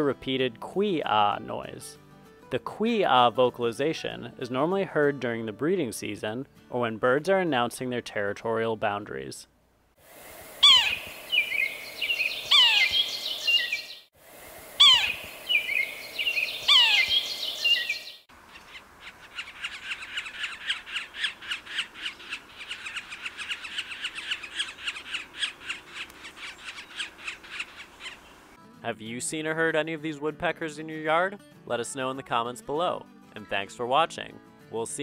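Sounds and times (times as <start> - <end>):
bird mewing calls: 10.6 - 14.1, 14.7 - 28.6
rapid repeated bird call notes: 10.6 - 14.1, 14.8 - 28.6.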